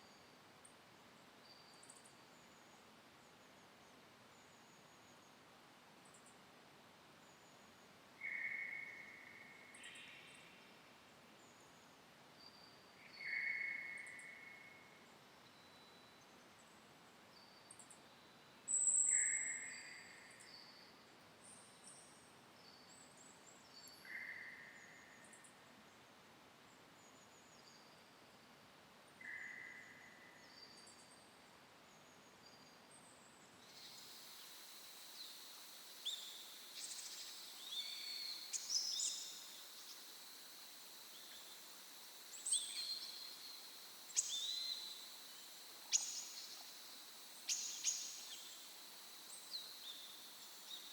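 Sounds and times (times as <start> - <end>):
faint hiss: 0.0 - 50.9
forest birds calling and chirping: 33.6 - 50.9.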